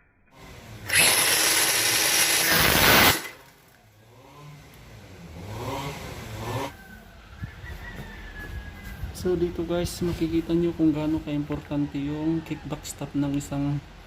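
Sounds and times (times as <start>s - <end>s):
motor whine: 0.4s - 3.6s
angle grinder running: 0.8s - 3.6s.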